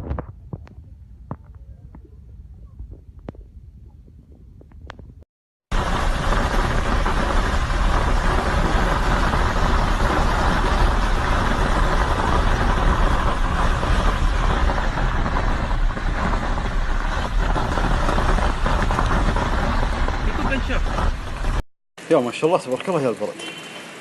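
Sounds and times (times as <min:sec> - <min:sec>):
wind buffeting microphone: 0:00.0 - 0:05.2
heavy hail and rain: 0:05.7 - 0:21.6.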